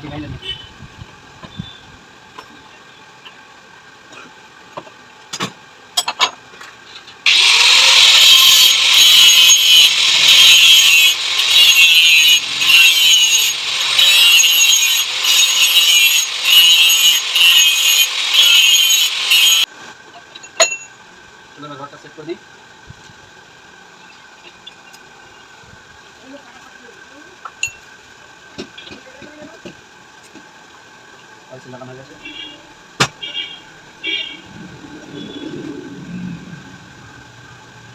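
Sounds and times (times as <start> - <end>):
tool scraping metal: 6.9 - 19.7.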